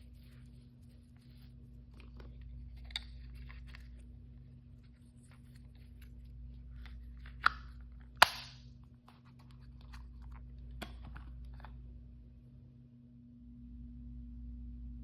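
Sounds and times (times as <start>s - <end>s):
sharp plastic snaps: 7.3s - 8.7s.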